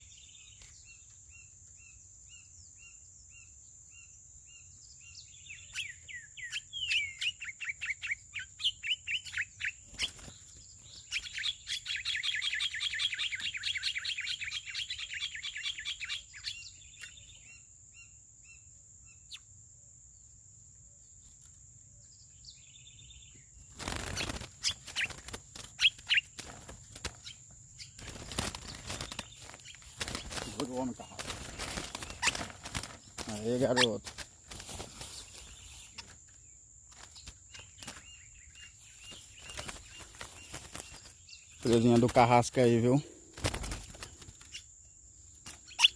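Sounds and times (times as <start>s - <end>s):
songbird chirping and trilling: 0.0s - 45.9s
rustling: 28.0s - 38.1s.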